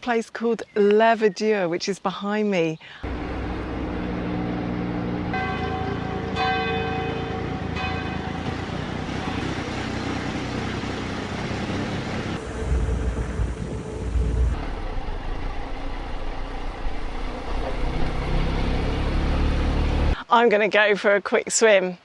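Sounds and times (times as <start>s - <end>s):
bells ringing: 5.2s - 9.5s
wind buffeting microphone: 7.5s - 18.3s.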